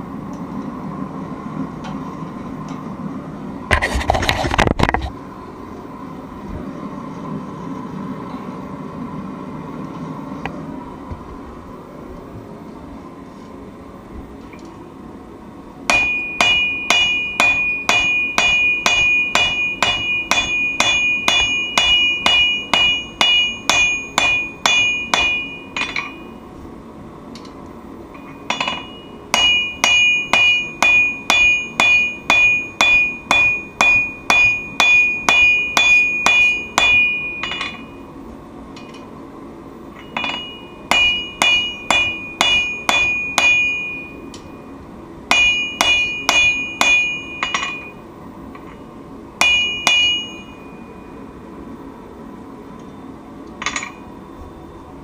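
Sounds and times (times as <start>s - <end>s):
hammer striking steel on anvil: 15.9s - 26.4s, 28.2s - 38.0s, 40.0s - 44.6s, 45.3s - 48.0s, 49.4s - 50.8s, 53.6s - 54.1s.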